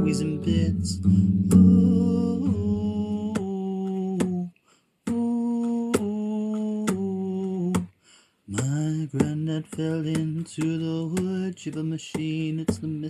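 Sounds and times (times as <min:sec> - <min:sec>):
person humming long notes: 0:00.0 - 0:04.5
sharp ticks: 0:08.5 - 0:13.0.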